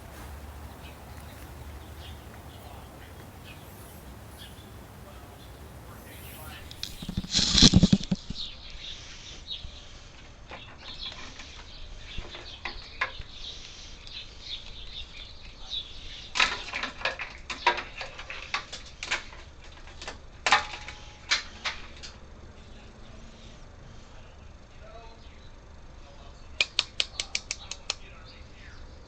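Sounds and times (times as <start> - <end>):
soft rustling: 0.0 - 7.7.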